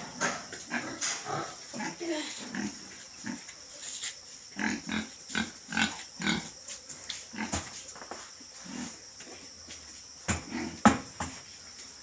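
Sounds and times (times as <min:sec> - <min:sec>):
pigs grunting: 0:00.0 - 0:03.5, 0:04.6 - 0:06.5, 0:10.4 - 0:10.9.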